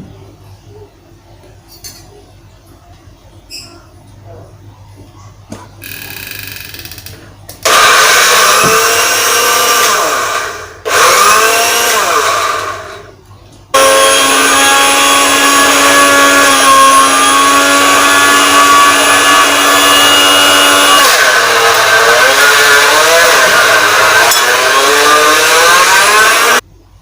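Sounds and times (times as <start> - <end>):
electric blender running: 7.6 - 13.2, 13.8 - 26.6.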